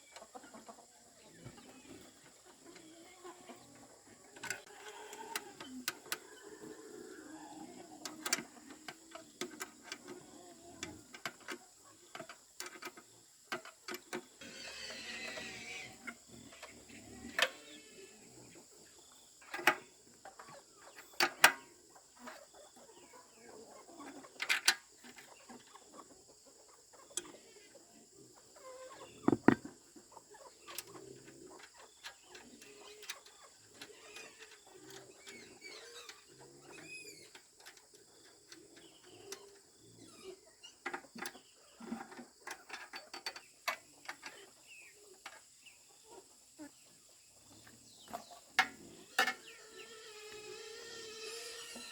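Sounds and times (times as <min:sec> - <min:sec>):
chickens clucking: 0:00.0 - 0:49.9
sharp clicks and knocks: 0:29.3 - 0:29.7.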